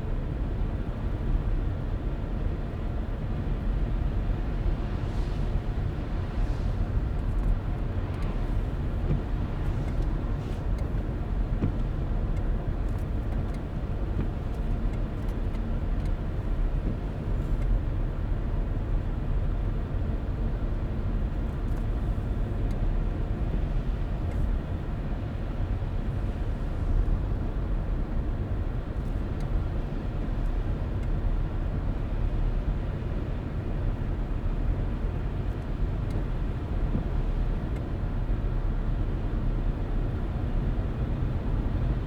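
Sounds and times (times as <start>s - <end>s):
car tyre and engine road noise: 0.0s - 42.0s
faint light ticks: 9.0s - 17.8s, 21.5s - 23.2s, 23.8s - 24.5s, 30.2s - 31.2s, 35.5s - 37.9s.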